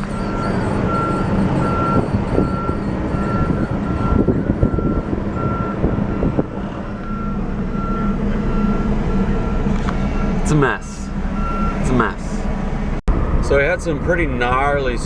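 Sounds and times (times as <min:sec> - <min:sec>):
high electronic beep: 0:00.0 - 0:06.4
vehicle engine rumble: 0:00.0 - 0:15.0.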